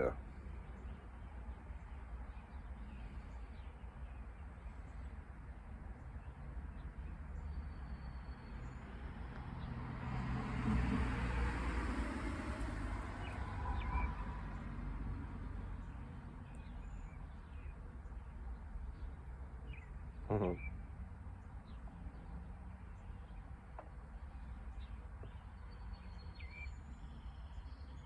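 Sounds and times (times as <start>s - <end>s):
vehicle passing by: 8.7s - 16.5s
faint bird chirps: 19.0s - 20.9s.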